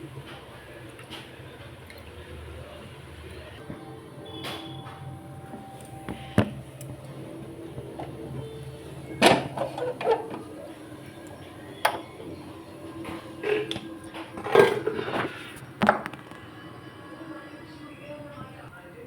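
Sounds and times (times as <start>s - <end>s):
steady hum: 2.6s - 19.0s
utensils knocking against pot: 7.9s - 16.3s.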